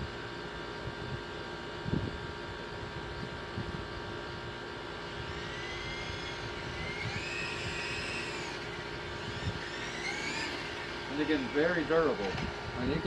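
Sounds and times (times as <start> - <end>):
helicopter electric motors whining: 2.8 - 13.0
higher whine rising and falling: 5.0 - 13.0.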